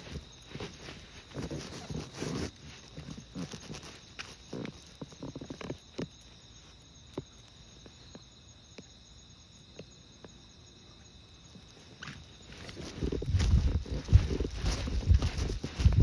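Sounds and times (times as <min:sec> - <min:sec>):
soft footsteps: 0:00.0 - 0:08.2, 0:11.6 - 0:16.0
insects chirping: 0:00.0 - 0:16.0.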